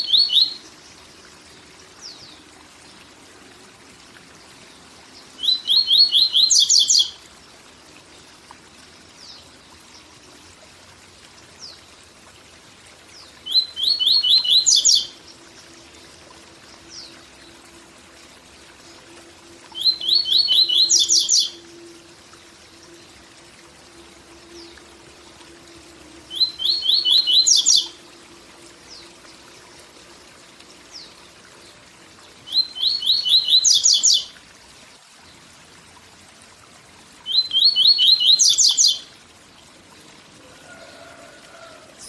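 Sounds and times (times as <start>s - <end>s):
bird singing whistled notes: 0.0s - 0.7s, 5.4s - 7.2s, 13.4s - 15.2s, 19.7s - 21.9s, 26.3s - 28.0s, 32.4s - 34.3s, 37.2s - 39.1s
waterfall rushing: 40.4s - 42.0s.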